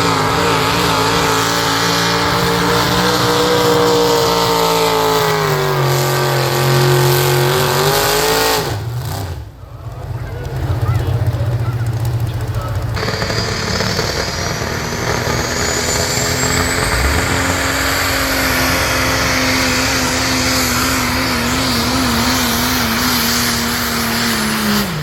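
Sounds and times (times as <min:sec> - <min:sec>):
diesel truck engine at full throttle: 0:00.0 - 0:25.0
turbo whistle: 0:13.0 - 0:22.7.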